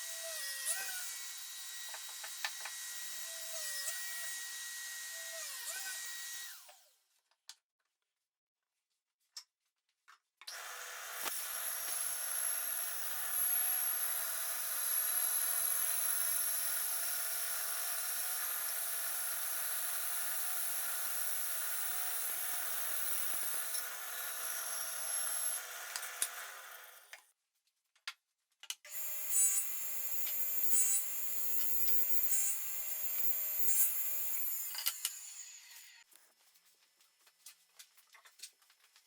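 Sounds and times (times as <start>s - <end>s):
power tool high whine: 0.0s - 6.8s, 10.5s - 27.1s, 28.9s - 36.0s.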